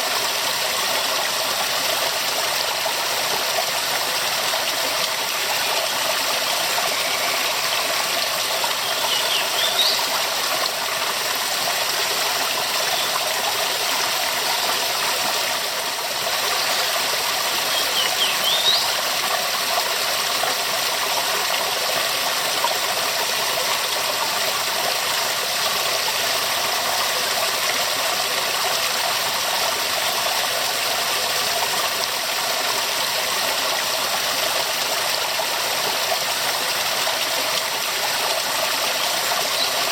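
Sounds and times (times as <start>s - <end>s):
waterfall rushing: 0.0s - 18.9s.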